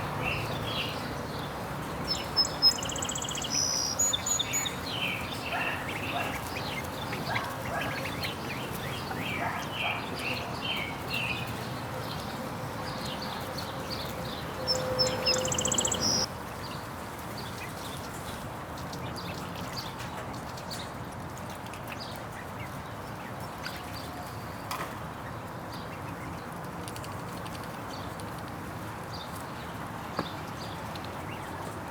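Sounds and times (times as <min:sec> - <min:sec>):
ducks peeping: 0:00.0 - 0:11.6, 0:12.2 - 0:16.3.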